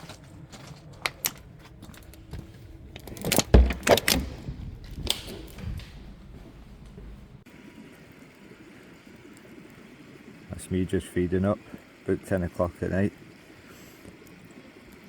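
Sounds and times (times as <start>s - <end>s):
hard objects clicking and knocking: 2.9s - 6.0s.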